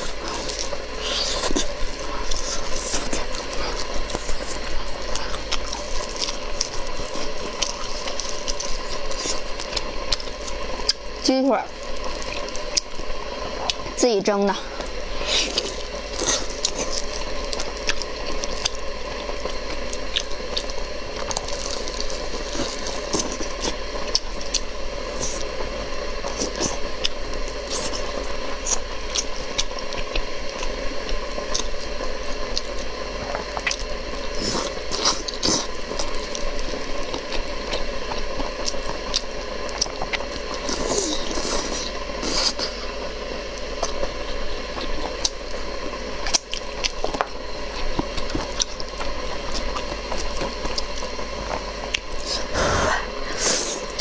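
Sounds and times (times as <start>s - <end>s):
wet chewing sounds: 0.0s - 11.1s, 11.7s - 14.0s, 14.6s - 54.0s
low background hum: 0.0s - 54.0s.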